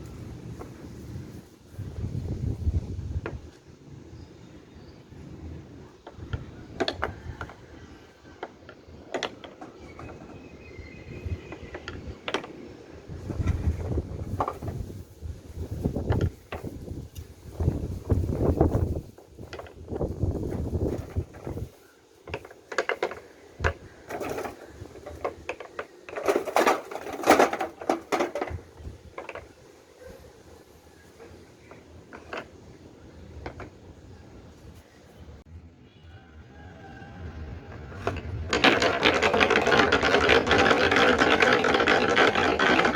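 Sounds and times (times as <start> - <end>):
balls rolling on wooden track: 5.4 - 15.0, 15.6 - 34.1, 37.2 - 42.9
balls clacking: 5.9 - 14.8, 18.4 - 21.6, 22.2 - 29.8, 31.1 - 34.0, 37.6 - 42.9.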